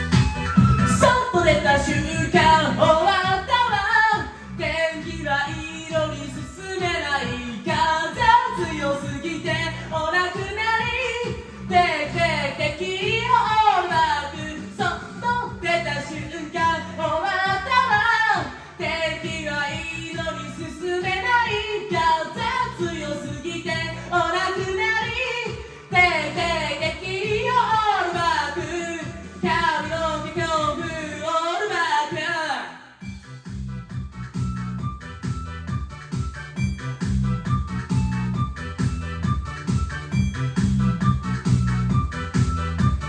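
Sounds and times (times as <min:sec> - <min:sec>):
backing track: 0:00.0 - 0:31.4, 0:33.0 - 0:43.0
person singing pop song: 0:00.0 - 0:33.2.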